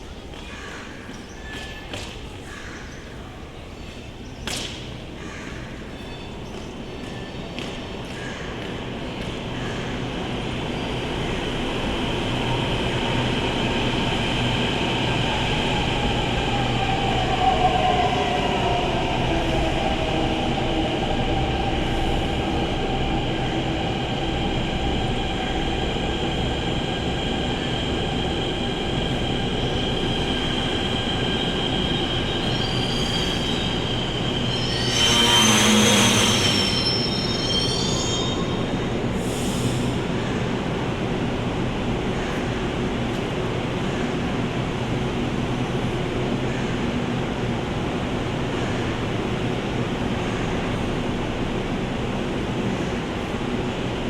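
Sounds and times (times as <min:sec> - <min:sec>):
train coaches rumbling on rails: 0:00.0 - 0:54.0
shrill squeal: 0:31.7 - 0:39.0
wheel squeal: 0:32.1 - 0:38.9.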